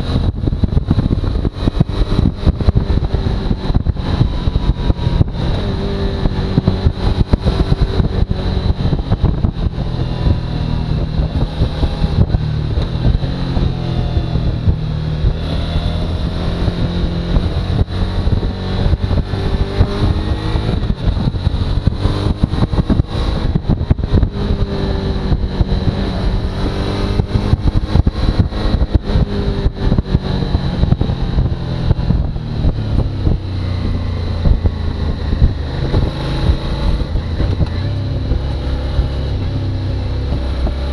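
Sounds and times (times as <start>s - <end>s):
motorcycle engine: 0.0s - 40.9s
wind buffeting microphone: 0.0s - 40.9s.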